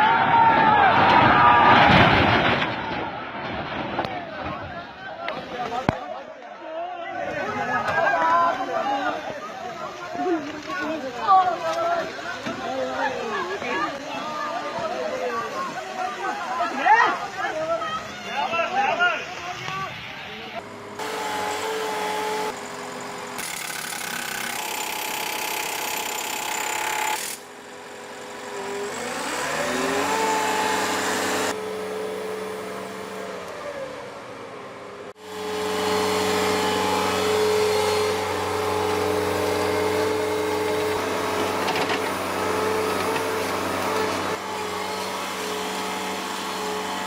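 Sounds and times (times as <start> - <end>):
heavy vehicle engines running: 7.1 - 23.4, 27.4 - 47.0
engine revving: 20.6 - 23.6, 27.9 - 34.3, 35.1 - 47.0.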